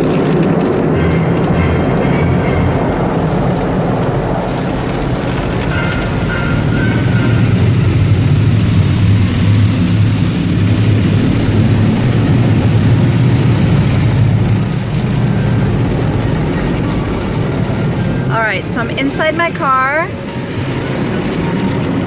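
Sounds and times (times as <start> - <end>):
car wash machinery rumbling: 0.0 - 22.0
hiss: 2.8 - 18.3.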